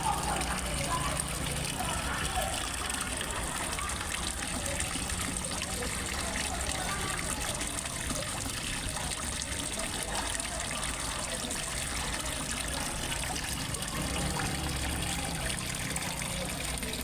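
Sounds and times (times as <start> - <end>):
water trickling into pond: 0.0 - 17.0.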